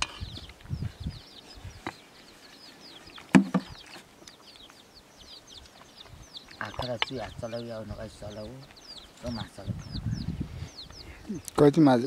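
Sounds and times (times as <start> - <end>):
birds cheeping: 0.0 - 12.0
sharp knock: 3.3 - 3.7
soft knocks: 3.3 - 3.8.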